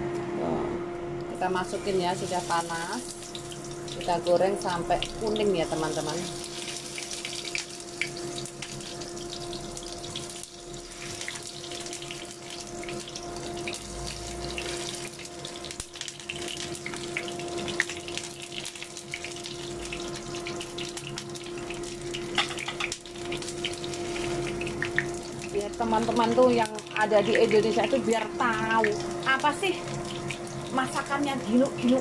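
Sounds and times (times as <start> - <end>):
steady low hum: 0.0 - 32.0
peppers sizzling in hot oil: 1.5 - 32.0.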